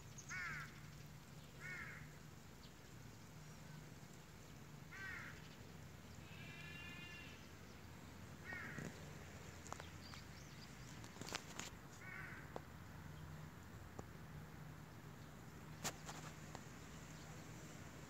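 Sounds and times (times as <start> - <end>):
bird calling: 0.1 - 1.0, 6.2 - 7.6.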